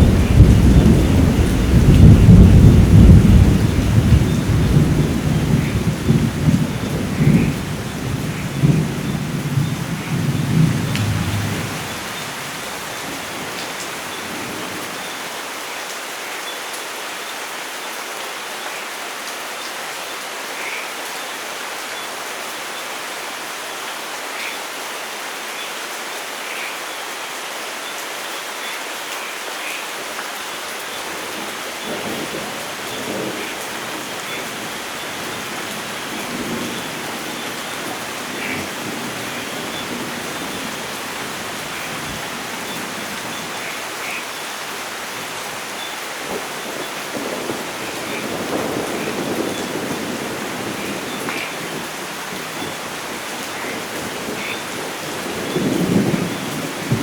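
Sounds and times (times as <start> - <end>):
thunder rumbling: 0.0 - 15.0, 31.0 - 44.2, 46.2 - 57.0
steady rain hiss: 0.0 - 57.0.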